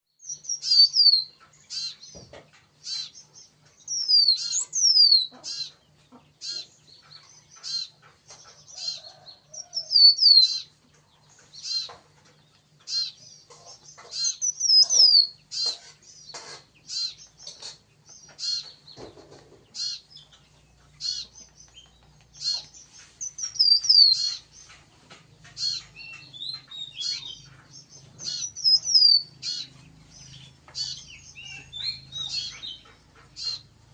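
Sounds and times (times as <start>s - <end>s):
bird whistling and chirping: 0.2s - 1.9s, 3.9s - 5.7s, 14.2s - 15.4s, 23.2s - 24.4s, 28.2s - 29.7s.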